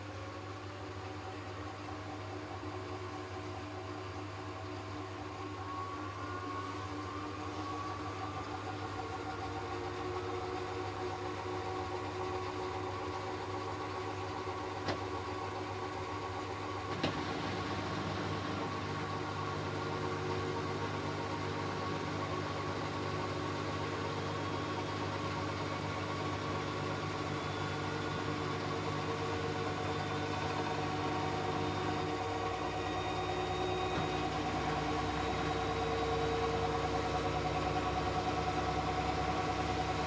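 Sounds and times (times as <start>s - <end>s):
washing machine low hum: 12.8s - 40.0s.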